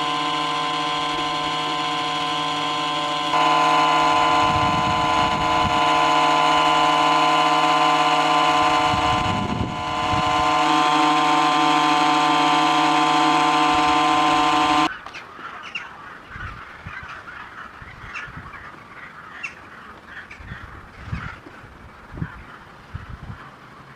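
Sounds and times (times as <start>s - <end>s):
compressor humming: 0.0s - 14.9s.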